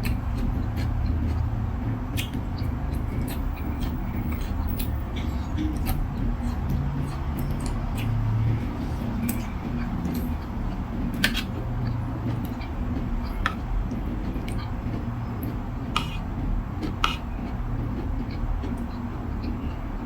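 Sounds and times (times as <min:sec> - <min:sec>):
utensils clicking against bowl: 0:02.1 - 0:17.6.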